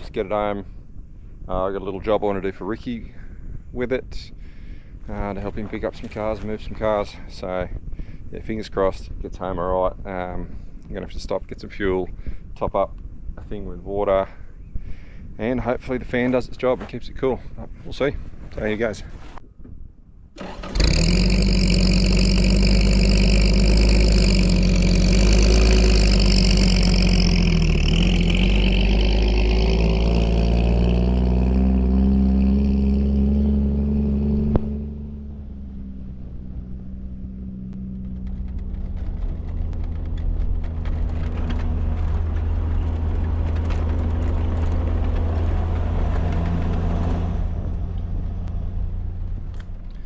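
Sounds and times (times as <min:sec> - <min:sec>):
truck engine revving under load: 0:20.4 - 0:50.0.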